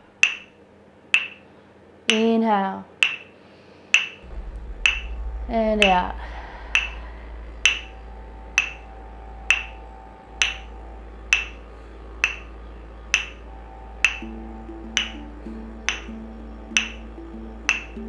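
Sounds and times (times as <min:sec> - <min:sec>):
sharp wood-block tick: 0:00.2 - 0:00.5, 0:01.2 - 0:01.4, 0:02.1 - 0:02.3, 0:03.0 - 0:03.3, 0:04.0 - 0:04.2, 0:11.3 - 0:11.6, 0:12.2 - 0:12.5, 0:13.1 - 0:13.4, 0:14.0 - 0:18.0
low repeating note: 0:04.2 - 0:18.0
soft background music: 0:04.2 - 0:18.0.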